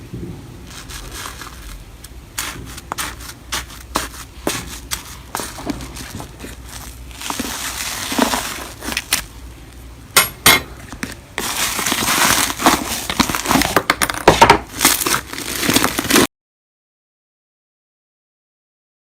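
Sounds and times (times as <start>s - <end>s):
slime crackling and popping: 0.7s - 9.9s, 11.4s - 16.3s.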